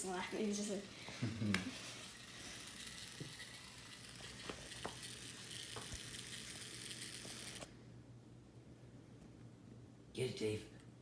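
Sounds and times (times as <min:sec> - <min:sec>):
toy vibration motor buzzing: 0:00.0 - 0:07.8.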